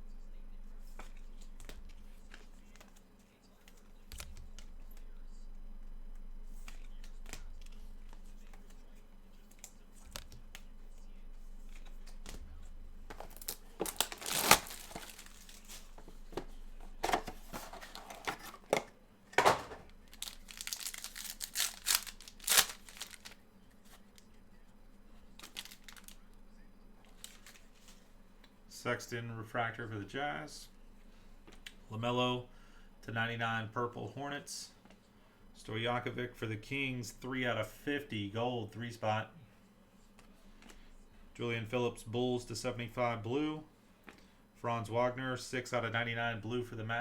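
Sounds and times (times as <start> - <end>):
faint low hum: 0.0 - 47.0
card wrappers ripping and crinkling: 13.1 - 18.7, 19.5 - 24.4, 25.3 - 26.3, 27.1 - 28.0.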